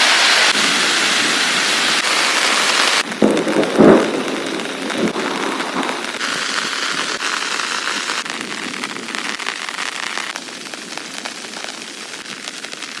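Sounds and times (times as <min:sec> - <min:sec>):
heavy rain hissing: 0:00.0 - 0:13.0
raindrop hits: 0:02.0 - 0:13.0.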